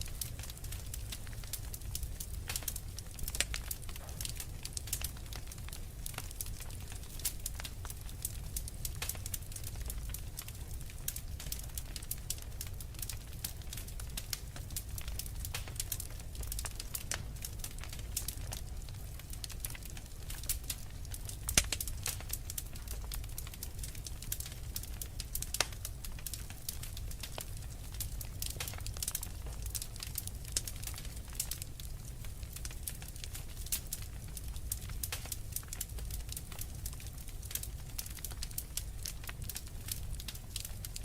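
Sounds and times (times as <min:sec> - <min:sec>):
fireplace fire crackling: 0:00.0 - 0:41.0.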